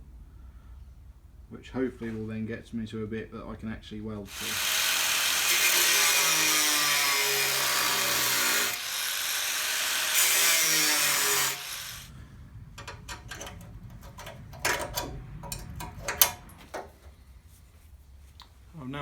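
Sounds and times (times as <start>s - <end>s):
angle grinder cutting steel: 4.3s - 12.1s, 12.8s - 16.9s
light metallic clicks and knocks: 12.8s - 17.2s.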